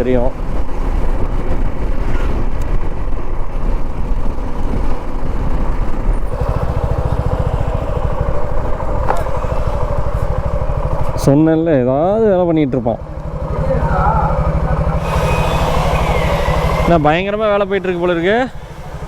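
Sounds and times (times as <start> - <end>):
wind noise on microphone: 0.0 - 6.5
motorcycle engine: 0.0 - 19.0.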